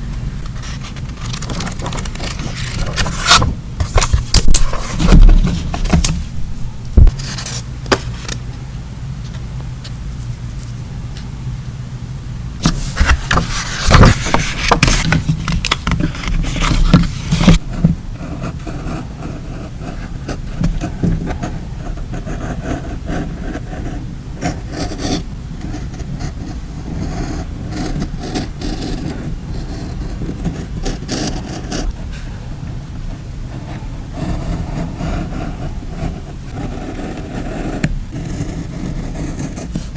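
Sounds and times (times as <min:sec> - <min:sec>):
low steady hum: 0:00.0 - 0:39.9
paper rustling and ticks: 0:00.4 - 0:06.2, 0:12.6 - 0:17.6
paper rubbing and scraping: 0:00.4 - 0:06.4, 0:07.0 - 0:08.4, 0:12.6 - 0:32.3, 0:33.5 - 0:39.9.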